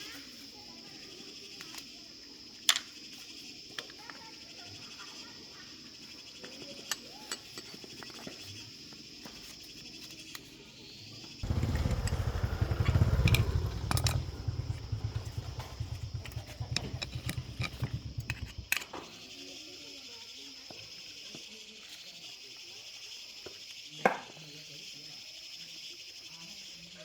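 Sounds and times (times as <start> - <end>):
crickets chirping: 0.0 - 27.0
scooter engine running: 11.4 - 18.9.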